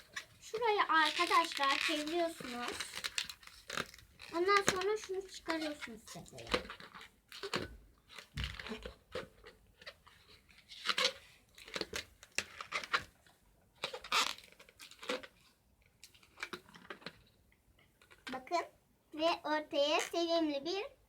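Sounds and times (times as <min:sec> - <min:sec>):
balloon rubbing and crinkling: 0:00.0 - 0:13.2, 0:13.8 - 0:15.5, 0:19.8 - 0:20.4.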